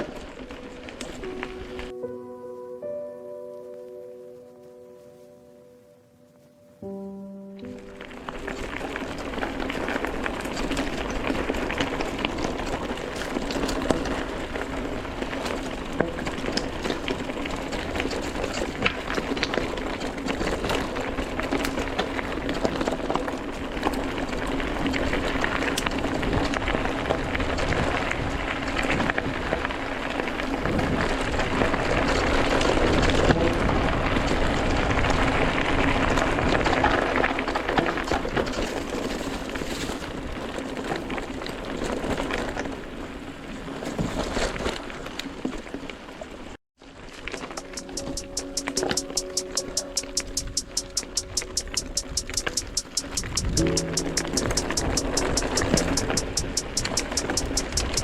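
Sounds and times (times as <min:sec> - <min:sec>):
bike tyres crunching on gravel: 0:00.0 - 0:01.9, 0:07.6 - 0:48.6
small clicks and rattles: 0:47.3 - 0:58.0.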